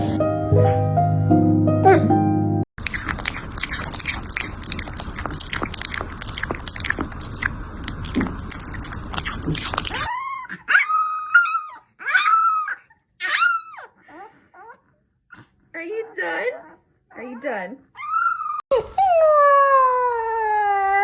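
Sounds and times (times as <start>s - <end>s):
dog chewing with crunching: 2.8s - 10.1s
dog whining: 9.3s - 21.0s.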